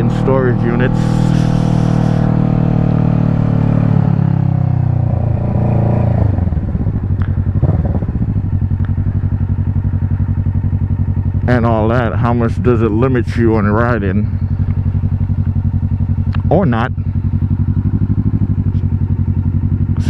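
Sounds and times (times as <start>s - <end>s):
motorcycle engine: 0.0s - 20.0s.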